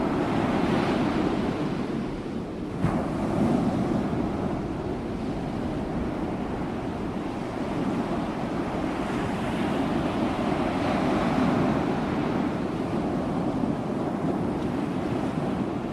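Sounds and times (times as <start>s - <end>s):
ocean surf rushing: 0.0s - 15.9s.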